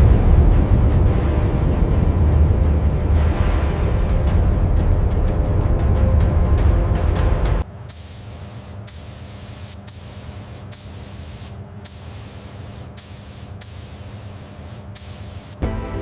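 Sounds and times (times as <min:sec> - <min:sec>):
low hum: 0:00.0 - 0:16.0
short sharp hisses or clicks: 0:07.9 - 0:15.6
steady spraying hiss: 0:07.9 - 0:15.6.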